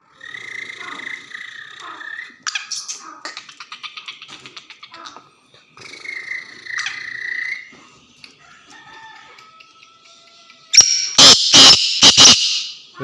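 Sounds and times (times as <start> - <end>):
harsh grating bird call: 0.0 - 4.2, 10.5 - 13.0
faint whistled bird notes: 5.7 - 8.0.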